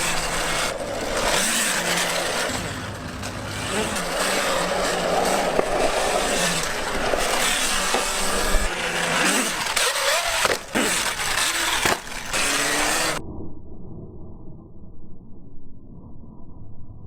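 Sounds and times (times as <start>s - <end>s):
motorcycle engine: 0.0s - 13.2s
road noise: 0.0s - 13.2s.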